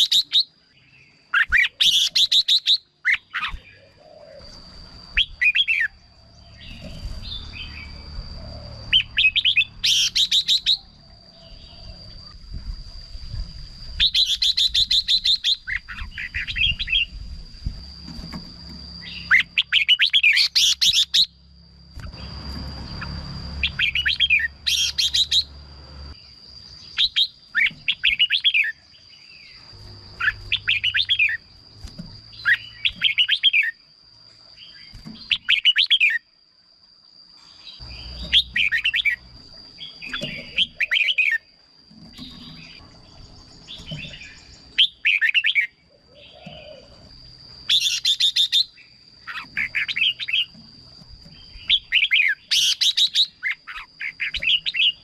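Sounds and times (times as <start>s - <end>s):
bird singing warbling phrases: 0.0s - 12.3s, 14.0s - 17.2s, 23.0s - 25.6s, 26.2s - 33.8s, 34.6s - 36.3s, 37.7s - 41.5s, 42.2s - 47.0s, 47.7s - 50.6s, 51.3s - 55.0s.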